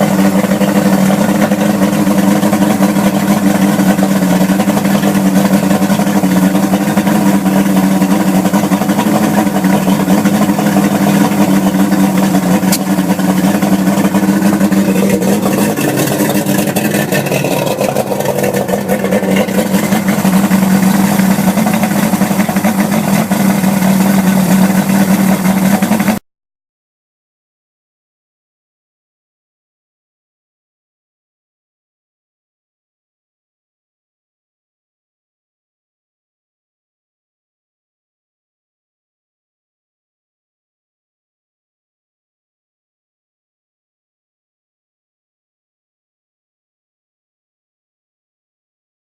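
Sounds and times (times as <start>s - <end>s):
outboard motor running: 0.0s - 26.2s.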